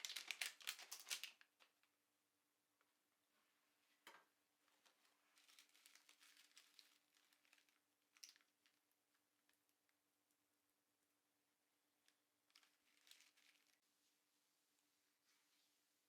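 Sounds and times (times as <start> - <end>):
faint clicks and rustles: 4.0 - 10.0, 12.0 - 14.0.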